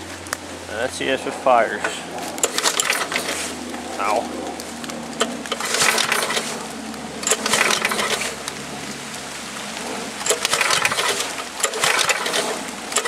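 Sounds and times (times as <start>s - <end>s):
recoil starter rope rattling: 1.8s - 3.9s, 5.2s - 6.6s, 7.2s - 8.4s, 10.2s - 13.0s.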